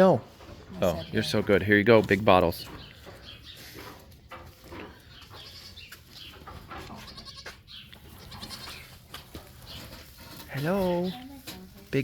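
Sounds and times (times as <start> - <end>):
goat kids bleating: 5.2 - 6.0, 6.8 - 9.2.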